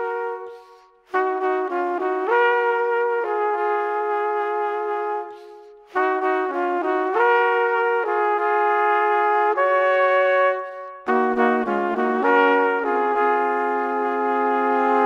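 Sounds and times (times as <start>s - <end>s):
slow brass-like chords: 6.0s - 15.0s.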